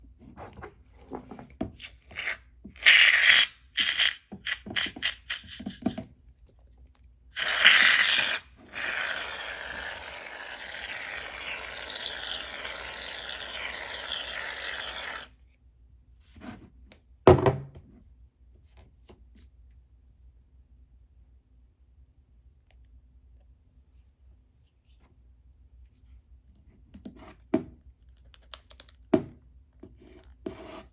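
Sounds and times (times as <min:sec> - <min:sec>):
slime hissing: 0:01.8 - 0:05.8, 0:07.4 - 0:15.3.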